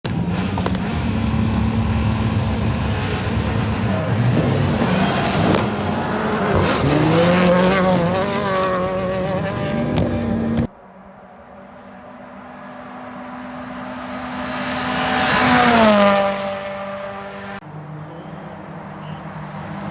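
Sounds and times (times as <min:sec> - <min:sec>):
rally car engine at high revs: 0:00.0 - 0:10.7, 0:12.4 - 0:17.6.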